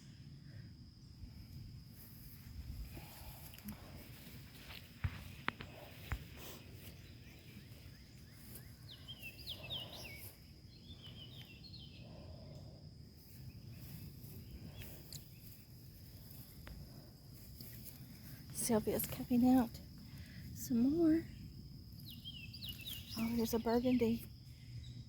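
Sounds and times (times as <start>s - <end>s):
birds chirping: 5.2s - 12.4s, 22.0s - 24.2s.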